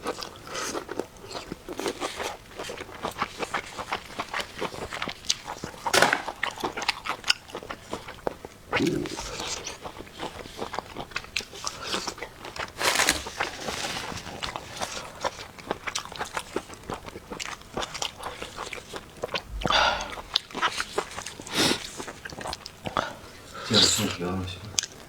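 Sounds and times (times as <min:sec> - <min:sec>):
chewing and biting food: 0:00.0 - 0:25.0
wet mouth clicks: 0:08.7 - 0:09.6.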